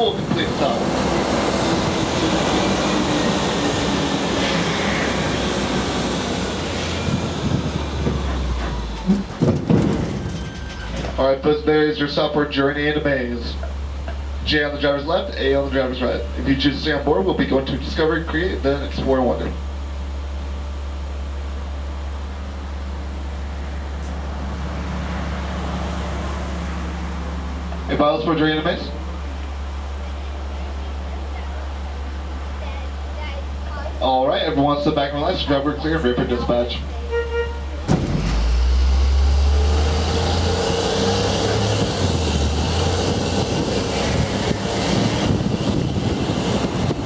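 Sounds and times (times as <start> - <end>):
rushing noise: 0.0 - 10.0
tram engine hum: 0.0 - 47.0.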